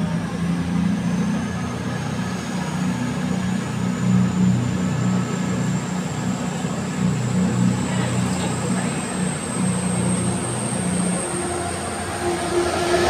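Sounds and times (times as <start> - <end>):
diesel train engines: 0.0 - 13.0
high whine rising in pitch: 2.8 - 13.0.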